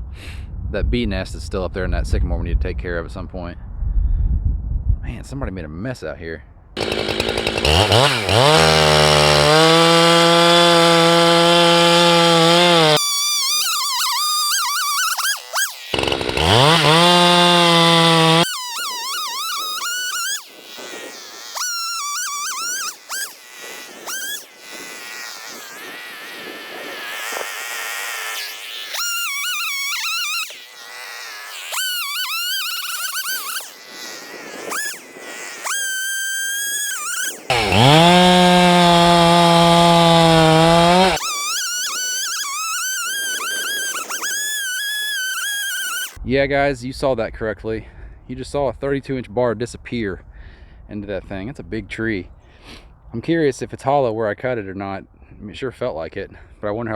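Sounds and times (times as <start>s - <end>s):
chainsaw cutting stump: 6.8s - 46.2s
chainsaw revving: 6.8s - 46.2s.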